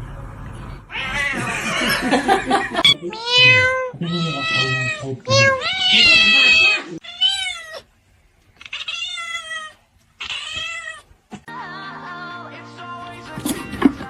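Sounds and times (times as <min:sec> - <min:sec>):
cat meowing: 0:00.9 - 0:01.6, 0:02.8 - 0:07.9, 0:08.6 - 0:11.1.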